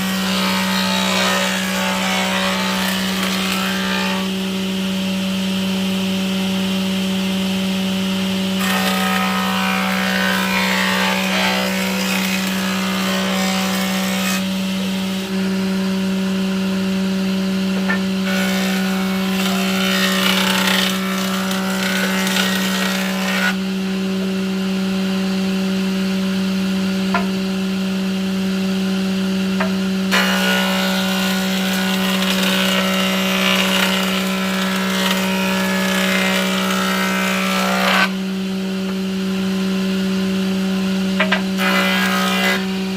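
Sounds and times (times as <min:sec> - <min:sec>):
power tool humming: 0:00.0 - 0:05.0, 0:17.8 - 0:23.6, 0:30.1 - 0:38.2.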